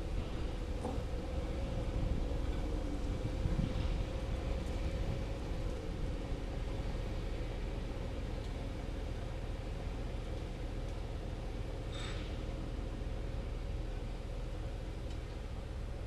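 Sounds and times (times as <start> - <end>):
excavator diesel engine rumbling: 0.0 - 16.0
faint ticks: 15.0 - 15.3.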